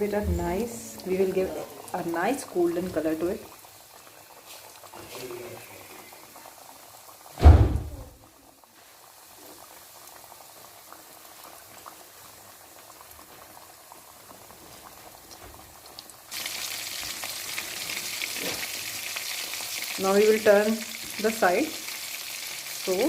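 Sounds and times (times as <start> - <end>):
chicken deep-frying in oil: 0.0 - 23.0
loud thump: 7.4 - 8.2.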